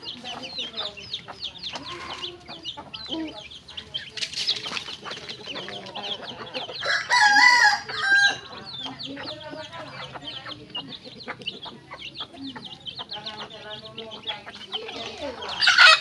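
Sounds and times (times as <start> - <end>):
chickens clucking: 0.0 - 16.0
rooster crowing: 6.8 - 8.4.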